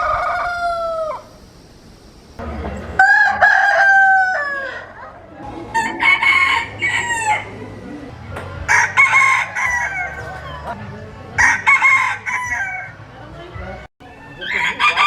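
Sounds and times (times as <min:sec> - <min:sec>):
rooster crowing: 0:00.0 - 0:01.4, 0:03.0 - 0:07.6, 0:08.7 - 0:10.7, 0:11.4 - 0:13.0, 0:14.0 - 0:15.0.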